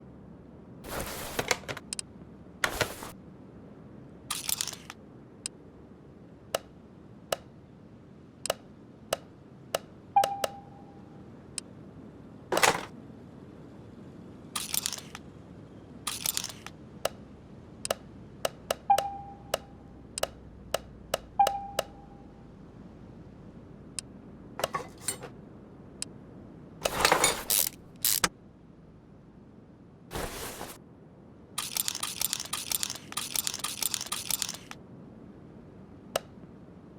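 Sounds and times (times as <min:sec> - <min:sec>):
metal parts scraping rattles: 0:04.3 - 0:04.9, 0:12.5 - 0:12.9, 0:14.6 - 0:15.2, 0:16.1 - 0:16.7, 0:24.6 - 0:25.3, 0:26.8 - 0:28.3, 0:30.1 - 0:30.8, 0:31.6 - 0:34.8
metal tools clicking and knocking: 0:24.6 - 0:25.3, 0:26.8 - 0:28.3, 0:31.6 - 0:34.8.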